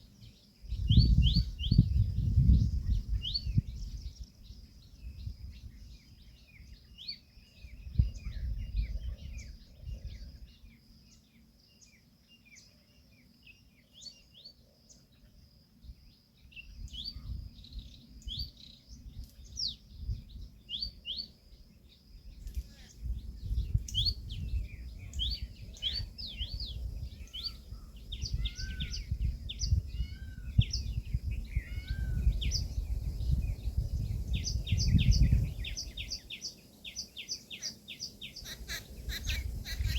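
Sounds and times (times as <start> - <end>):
small birds chirping: 0.0 - 39.9
lower short bird calls: 24.1 - 32.7, 35.7 - 39.9.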